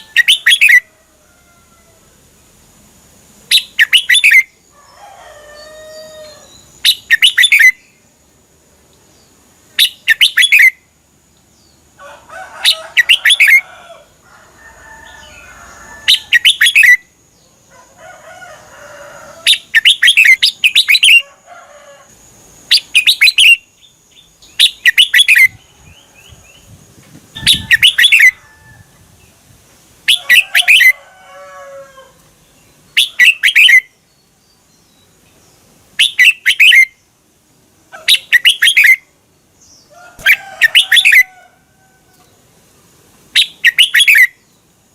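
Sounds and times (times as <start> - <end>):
bird chattering calls: 0.0 - 0.8, 3.5 - 4.5, 6.8 - 7.9, 9.7 - 10.8, 12.6 - 13.6, 16.1 - 17.0, 19.4 - 21.2, 24.6 - 25.6, 27.3 - 28.4, 30.1 - 31.0, 32.9 - 33.9, 36.0 - 37.0, 37.9 - 39.1, 40.2 - 41.3, 43.3 - 44.4
bird singing warbled phrases: 0.0 - 0.9, 3.5 - 4.6, 5.6 - 8.1, 9.1 - 11.0, 12.6 - 13.6, 15.0 - 17.6, 19.4 - 21.3, 22.6 - 28.4, 30.0 - 31.0, 32.2 - 37.2, 37.9 - 41.4, 43.3 - 44.7.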